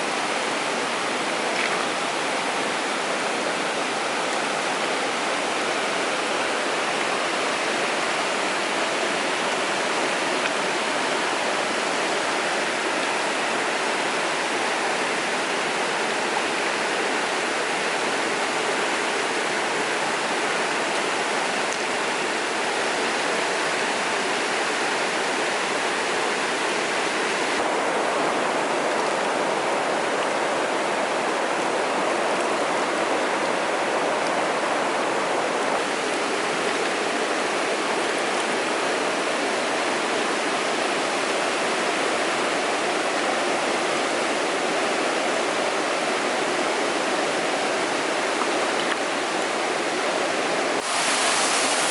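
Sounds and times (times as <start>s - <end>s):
stream rushing over rocks: 0.0s - 51.9s.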